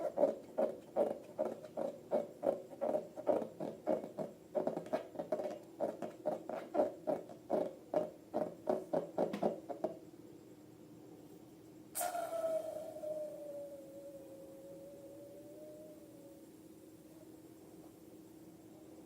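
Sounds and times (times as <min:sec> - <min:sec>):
faint steady hum: 0:00.0 - 0:19.0
rapid short squeaks: 0:12.0 - 0:12.9.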